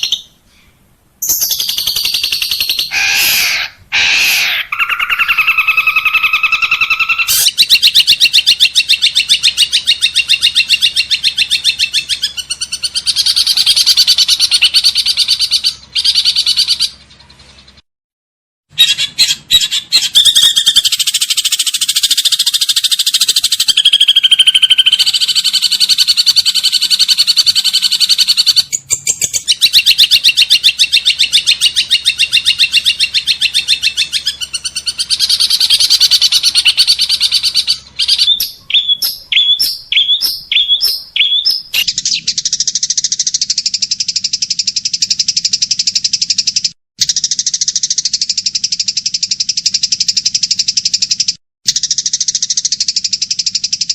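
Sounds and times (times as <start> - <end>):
short sharp bird chirps: 0.0 - 8.0
songbird trilling song: 0.0 - 17.8, 18.8 - 53.9.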